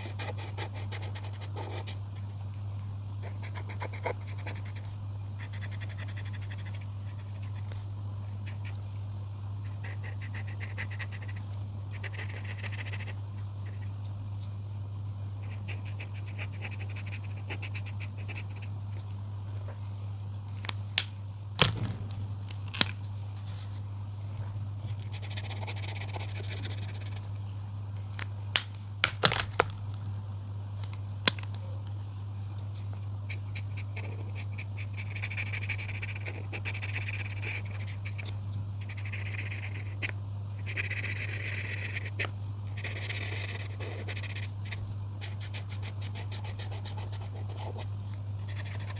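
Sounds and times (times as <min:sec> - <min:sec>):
steady low hum: 0:00.0 - 0:48.9
coloring strokes on paper: 0:03.2 - 0:09.0, 0:09.6 - 0:13.9, 0:25.0 - 0:27.3, 0:33.3 - 0:48.9.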